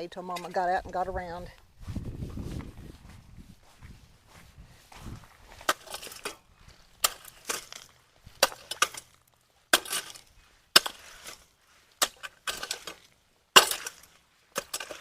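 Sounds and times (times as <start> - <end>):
rake scraping packed leaves: 9.8 - 15.0.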